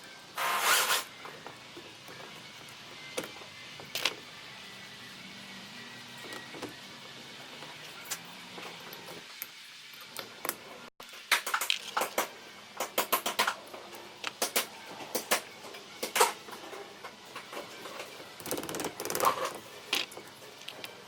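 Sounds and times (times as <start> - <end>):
metal parts clicking and clinking: 3.9 - 4.2.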